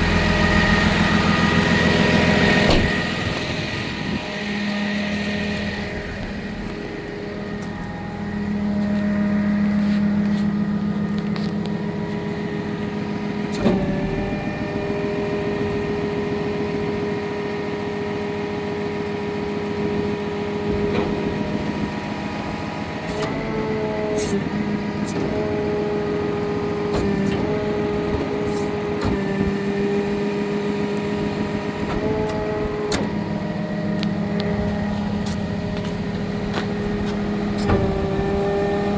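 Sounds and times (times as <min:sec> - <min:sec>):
diesel truck engine whine: 0:00.0 - 0:38.9.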